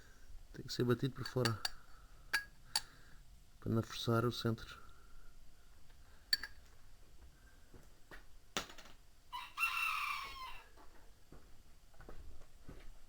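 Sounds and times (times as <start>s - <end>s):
rooster crowing: 9.3s - 10.8s.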